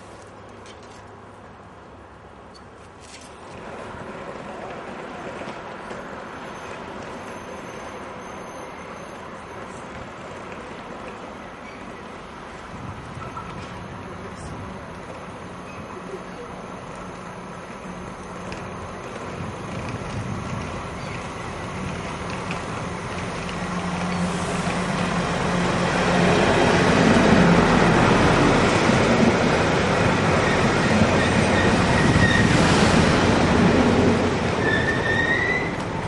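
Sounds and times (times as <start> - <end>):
train rumbling past: 3.4 - 36.0
high wheel squeals: 6.4 - 9.4, 30.4 - 32.6, 34.6 - 35.8.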